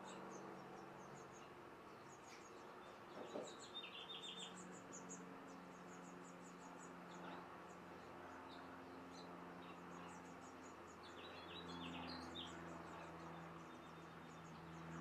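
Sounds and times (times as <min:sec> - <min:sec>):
bird chirps: 0:00.0 - 0:07.4.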